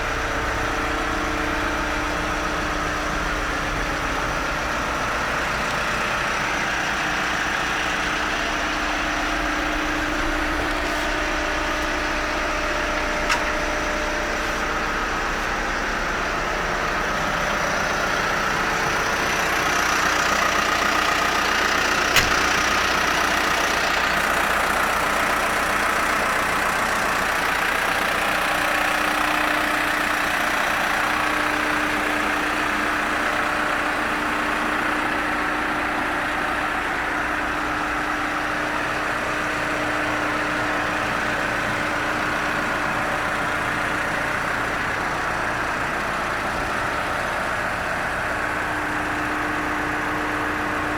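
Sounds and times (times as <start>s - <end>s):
diesel engine idling: 0.0s - 50.9s
sharp click: 22.1s - 22.5s.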